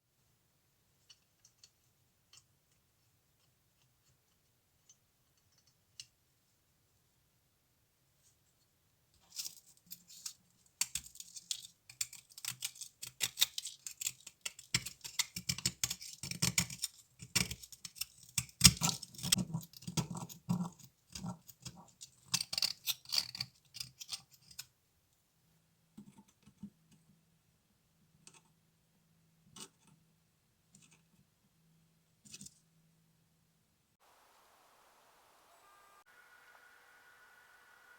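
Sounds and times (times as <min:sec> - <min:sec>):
small hand tools clicking and scratching: 0:09.2 - 0:24.8
faint steady hum: 0:32.7 - 0:37.9.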